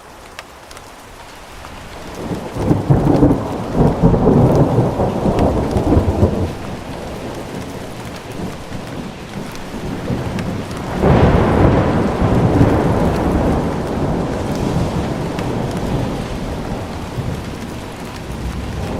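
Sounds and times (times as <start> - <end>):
rain falling: 0.0 - 18.9
thunder rolling: 2.1 - 18.9.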